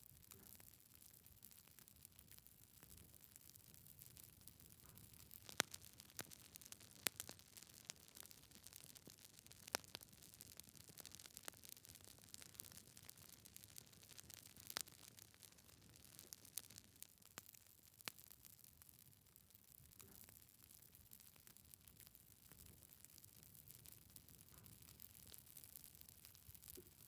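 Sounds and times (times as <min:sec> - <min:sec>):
logs crackling in fire: 0:00.0 - 0:27.0
sharp pops from fire: 0:00.2 - 0:19.1.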